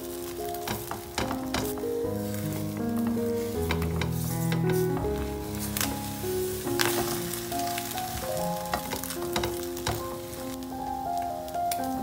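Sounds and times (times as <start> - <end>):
egg and tortilla sizzling: 0.0 - 10.8
calm piano music: 0.0 - 12.0
spatula scraping and tapping: 0.6 - 5.2.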